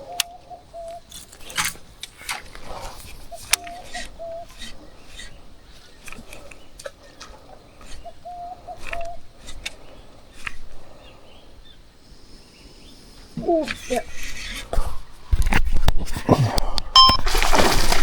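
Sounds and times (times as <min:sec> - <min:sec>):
bird hooting: 0:00.0 - 0:01.1, 0:02.6 - 0:14.2.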